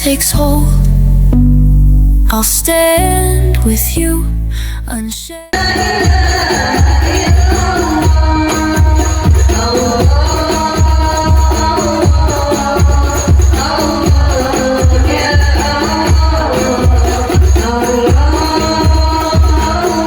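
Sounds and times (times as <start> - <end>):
background music with bass beat: 0.0 - 4.5.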